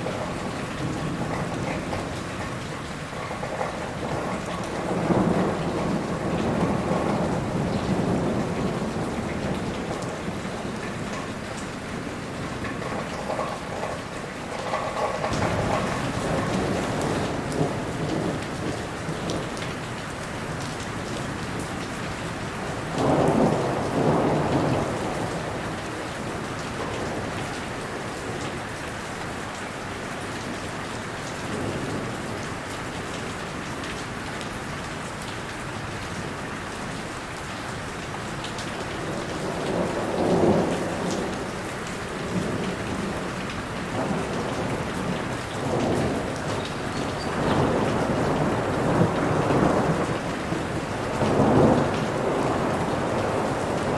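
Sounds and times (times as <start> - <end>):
thunder rumbling: 0.0 - 19.9, 20.5 - 27.4, 38.8 - 53.9
steady rain falling: 0.0 - 53.9.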